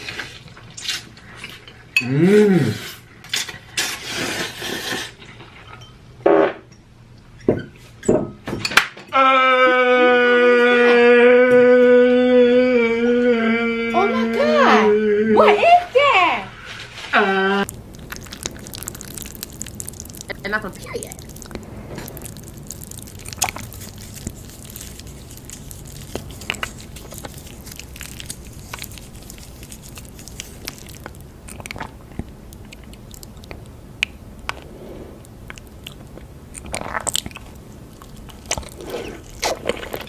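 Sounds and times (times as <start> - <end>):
biting and chewing: 17.6 - 40.0
food crunching: 17.6 - 40.0.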